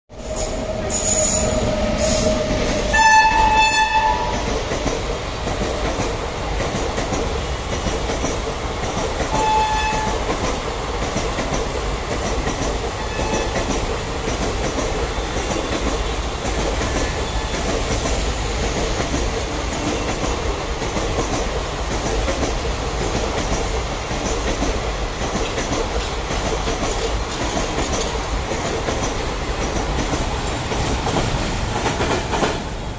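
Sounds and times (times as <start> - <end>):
train rumble and wheel clatter: 0.1 - 32.9
train horn blasts: 2.8 - 4.4, 9.3 - 10.2, 13.0 - 13.6.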